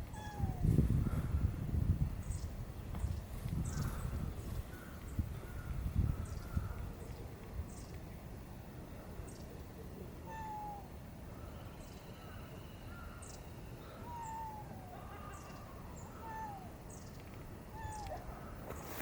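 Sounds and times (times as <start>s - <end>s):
cat meowing: 0.1s - 0.6s, 10.3s - 10.9s.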